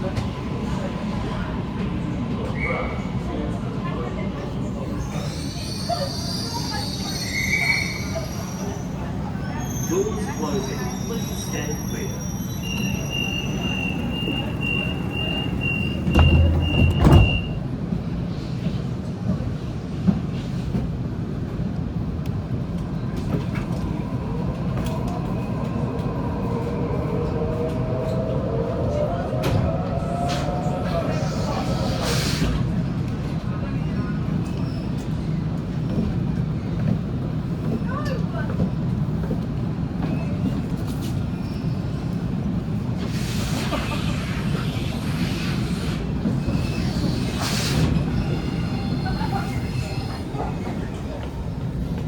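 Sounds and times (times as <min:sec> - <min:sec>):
train rumble: 0:08.0 - 0:52.0
traction motors whining: 0:14.5 - 0:17.6.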